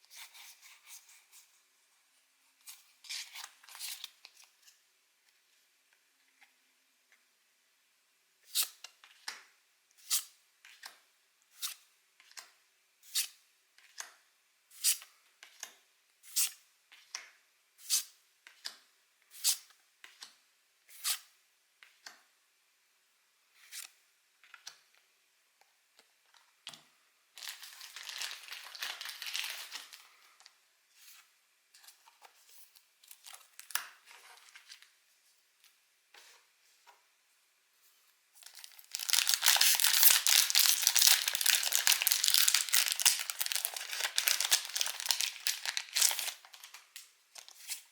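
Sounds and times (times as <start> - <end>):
foil wrapper crinkling and tearing: 27.4 - 30.1, 38.4 - 47.8.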